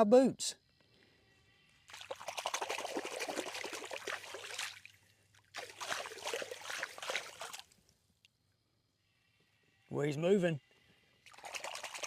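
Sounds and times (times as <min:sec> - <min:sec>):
fish splashing in water: 0:01.9 - 0:07.8, 0:11.3 - 0:12.0.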